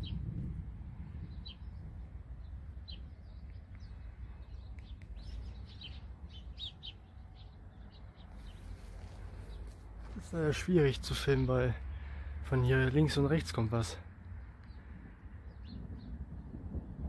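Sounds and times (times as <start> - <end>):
wind rumble on microphone: 0.0 - 10.0, 14.2 - 17.0
small songbirds chirping: 0.0 - 17.0.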